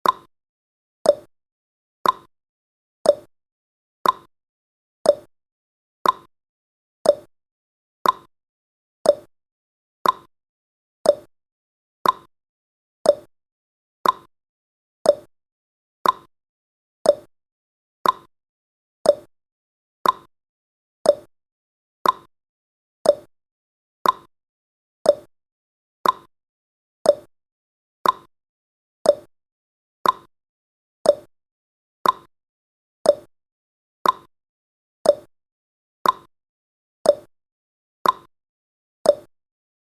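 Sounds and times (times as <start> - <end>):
clock ticking: 2.0 - 2.3, 4.0 - 4.3, 6.0 - 6.3, 8.0 - 8.3, 10.0 - 10.3, 12.0 - 12.3, 14.0 - 14.3, 18.0 - 18.3, 20.0 - 20.3, 22.0 - 22.3, 24.0 - 24.3, 26.0 - 26.3, 28.0 - 28.3, 29.1 - 29.3, 30.0 - 30.3, 31.1 - 31.3, 32.0 - 32.3, 33.1 - 33.3, 34.0 - 34.3, 35.1 - 35.3, 36.0 - 36.3, 38.0 - 38.3, 39.1 - 39.3.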